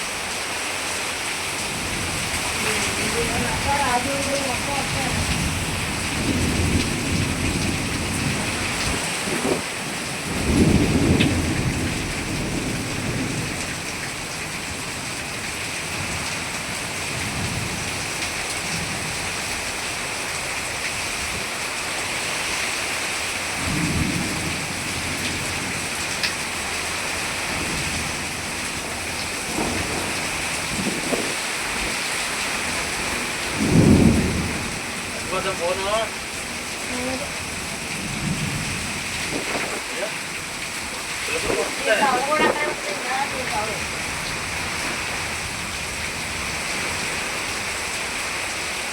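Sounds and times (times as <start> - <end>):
heavy rain pouring: 0.0 - 48.9
thunder rolling: 1.7 - 15.1, 23.6 - 36.7, 37.4 - 46.6.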